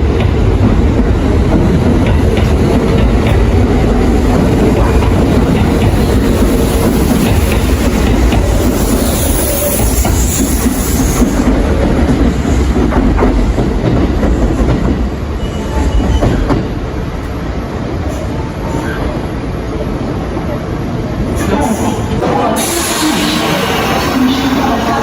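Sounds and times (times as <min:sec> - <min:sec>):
train wheels clattering: 0:00.0 - 0:17.4.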